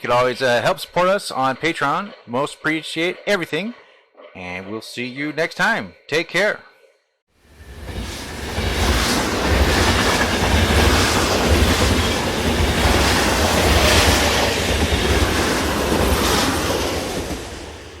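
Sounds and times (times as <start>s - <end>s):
train rumble with wheel clatter: 7.5s - 18.0s.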